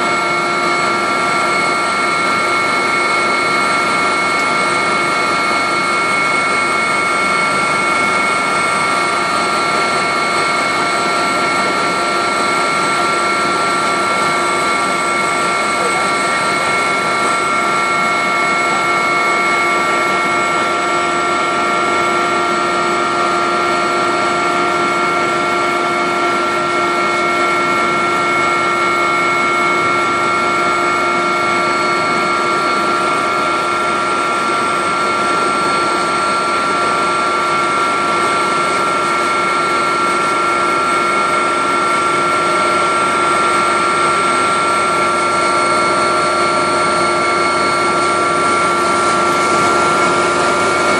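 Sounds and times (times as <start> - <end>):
helicopter turbine whine: 0.0 - 50.9.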